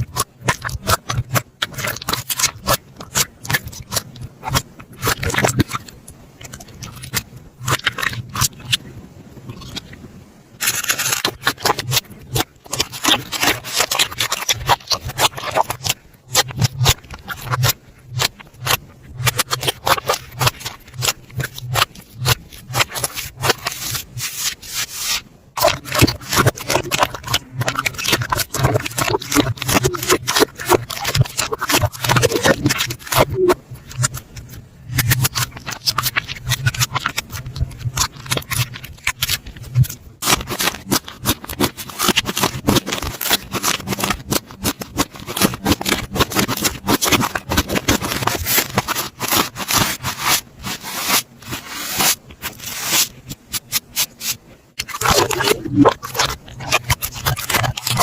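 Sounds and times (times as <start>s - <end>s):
slime squished by hand: 10.6s - 34.2s, 34.9s - 58.0s.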